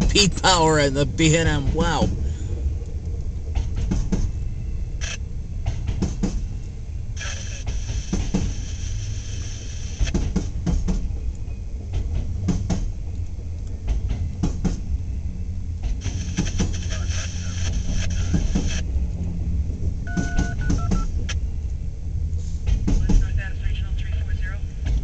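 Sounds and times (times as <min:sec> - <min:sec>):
wheels clanking over rail joints: 0:00.0 - 0:04.6, 0:05.6 - 0:06.7, 0:10.0 - 0:16.8, 0:22.4 - 0:23.2
freight train rumble: 0:00.0 - 0:25.0.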